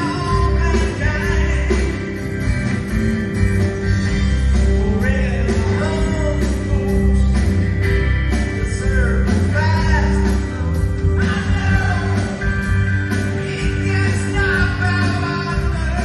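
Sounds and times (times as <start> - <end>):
person singing: 0.0 - 2.2, 4.6 - 7.6, 8.5 - 16.0
rock band playing: 0.0 - 16.0.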